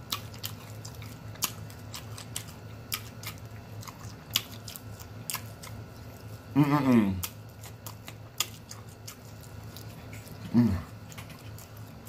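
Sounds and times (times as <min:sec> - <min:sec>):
chewing and lip-smacking: 0:00.0 - 0:12.0
low steady hum: 0:00.0 - 0:12.0.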